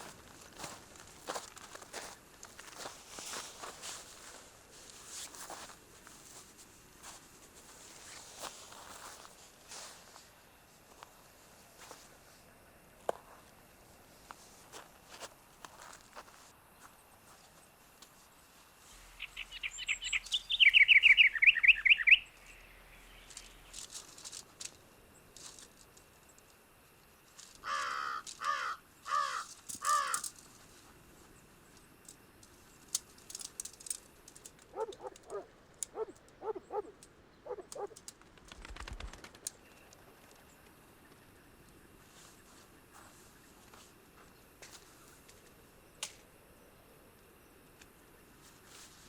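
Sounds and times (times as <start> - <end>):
wild birds singing and calling: 19.0 - 23.8, 34.6 - 38.2.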